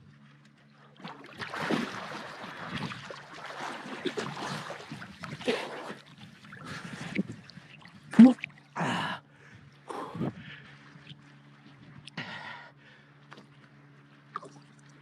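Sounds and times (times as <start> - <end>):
water splashing and sloshing: 0.0 - 12.2, 12.9 - 15.0.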